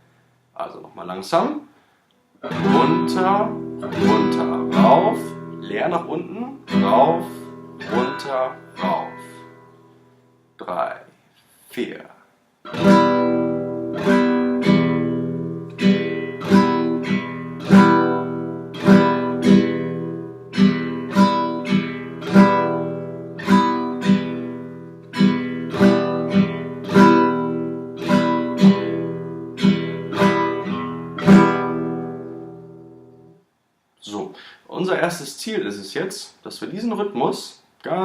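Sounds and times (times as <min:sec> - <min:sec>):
acoustic guitar strumming: 0:02.4 - 0:10.6, 0:12.6 - 0:33.5.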